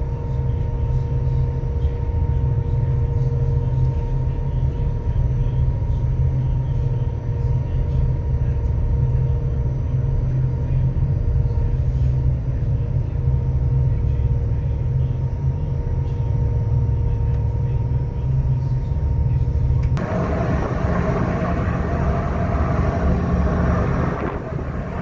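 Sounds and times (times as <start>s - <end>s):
constant hum: 0.0s - 25.0s
ferry engines droning: 19.9s - 25.0s.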